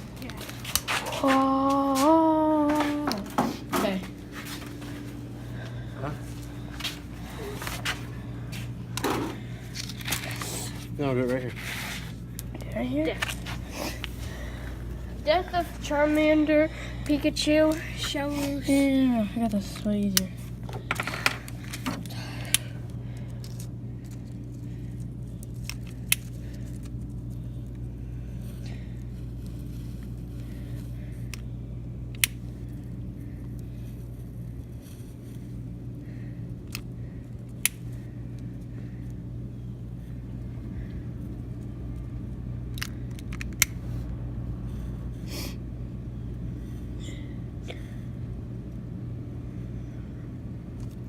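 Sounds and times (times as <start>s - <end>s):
low hum: 0.0s - 51.0s
handling and scraping: 6.3s - 16.5s, 17.2s - 22.1s.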